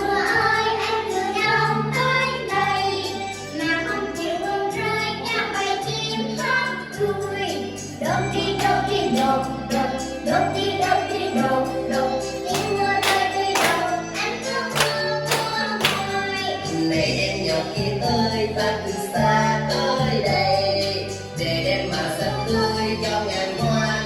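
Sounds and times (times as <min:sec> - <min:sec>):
young children singing: 0:00.0 - 0:24.0
instrumental accompaniment: 0:07.8 - 0:16.8.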